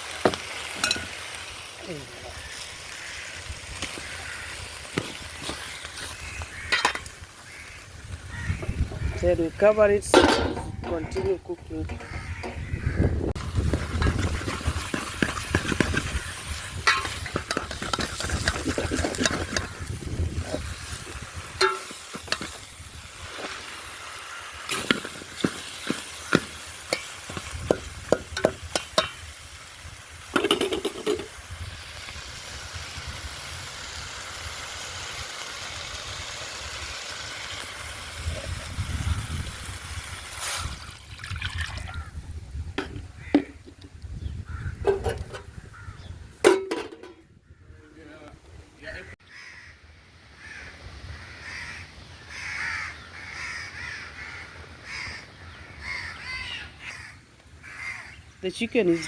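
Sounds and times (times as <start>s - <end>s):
chicken sizzling in a pot: 0.0s - 47.1s
spoon knocking against a pot: 10.2s - 12.9s, 24.7s - 29.2s, 30.4s - 31.3s.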